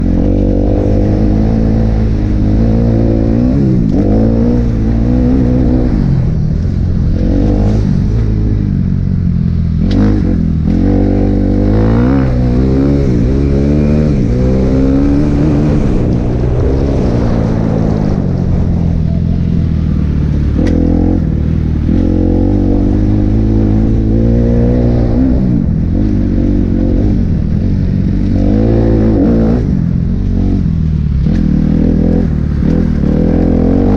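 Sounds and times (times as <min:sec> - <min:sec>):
motocross bike engine revving: 0:09.8 - 0:18.7, 0:31.2 - 0:33.9.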